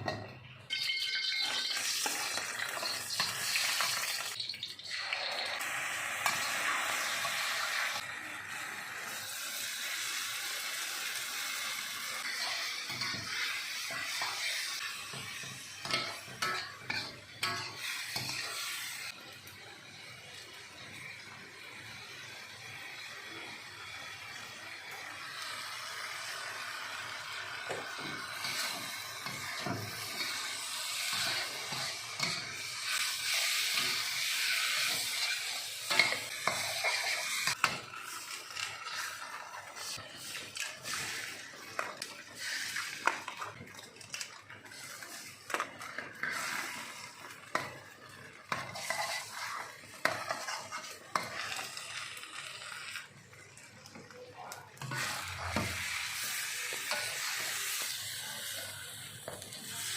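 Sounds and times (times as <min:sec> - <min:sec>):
noodles sizzling in a pan: 0:00.0 - 0:59.9
metal spatula scraping a pan: 0:12.0 - 0:19.2, 0:27.6 - 0:43.4, 0:44.7 - 0:53.1, 0:54.8 - 0:58.6.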